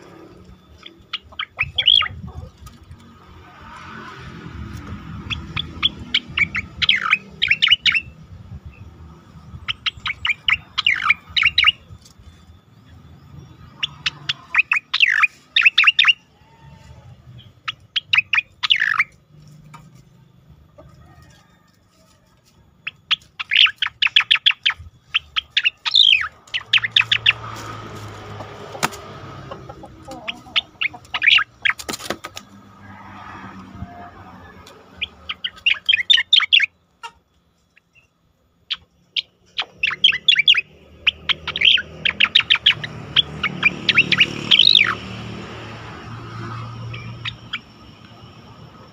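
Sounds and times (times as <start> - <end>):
bird singing whistled notes: 0.6 - 2.3, 5.3 - 16.3, 22.9 - 27.4, 37.7 - 45.0.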